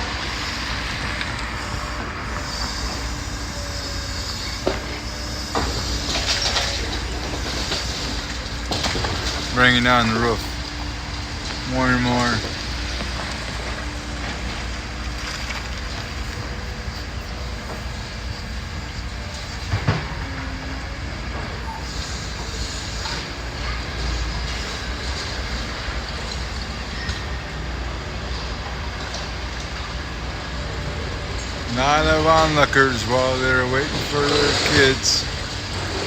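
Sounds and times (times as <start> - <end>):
machinery rumble and debris clatter: 0.0 - 36.0.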